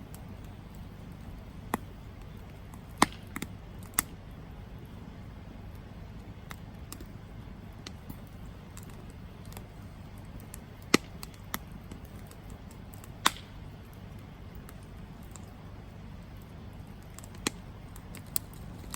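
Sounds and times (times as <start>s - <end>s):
campfire burning: 0.0s - 18.9s
wood crackling: 0.0s - 18.9s
sharp loud pops from fire: 3.0s - 4.0s, 10.8s - 11.6s, 13.0s - 13.7s.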